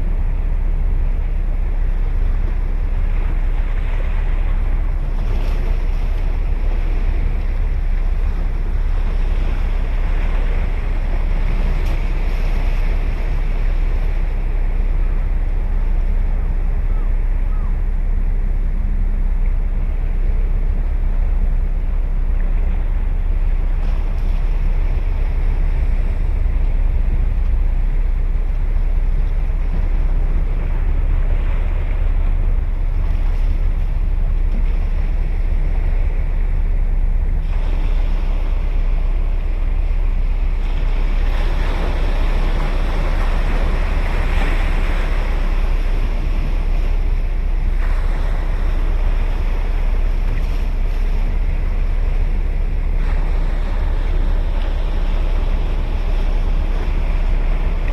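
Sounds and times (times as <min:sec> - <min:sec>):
ocean surf breaking: 0:00.0 - 0:57.9
wind rumble on microphone: 0:00.0 - 0:57.9.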